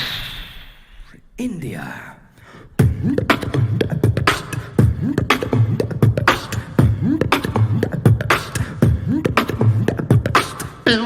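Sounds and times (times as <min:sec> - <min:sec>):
beatboxing: 0:02.8 - 0:11.0.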